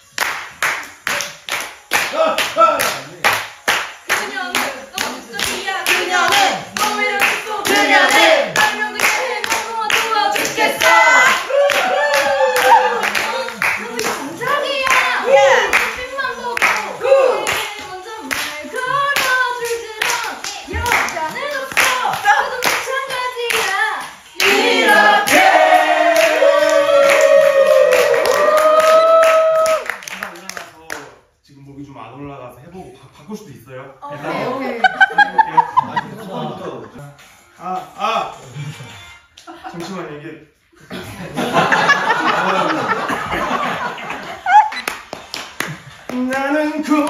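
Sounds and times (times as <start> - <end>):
people clapping in time: 0.0 - 31.2, 41.6 - 47.0
voices singing along: 4.1 - 27.9.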